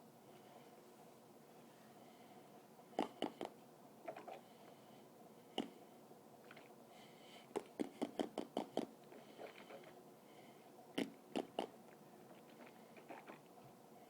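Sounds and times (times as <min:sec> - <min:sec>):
wet mouth pops: 0:03.0 - 0:03.5, 0:05.6 - 0:05.8, 0:07.6 - 0:08.9, 0:11.0 - 0:11.7.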